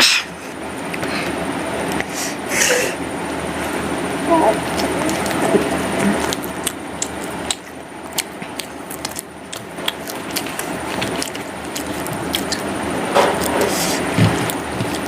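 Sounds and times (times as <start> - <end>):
chewing and mouth sounds: 3.6 - 15.0.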